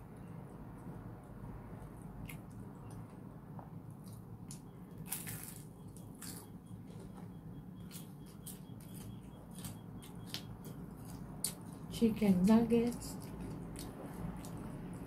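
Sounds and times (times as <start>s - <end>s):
chewing crunchy food: 3.9s - 11.9s, 12.8s - 15.0s.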